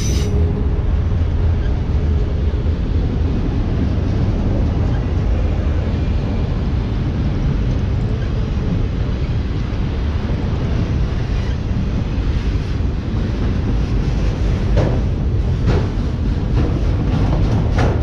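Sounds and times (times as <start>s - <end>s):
freight cars rumbling on rails: 0.0s - 18.0s.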